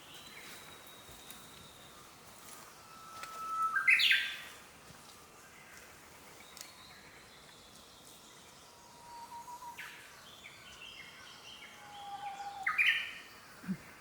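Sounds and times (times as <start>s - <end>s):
bird chirps: 0.0s - 4.6s
long bird whistles: 2.8s - 4.4s.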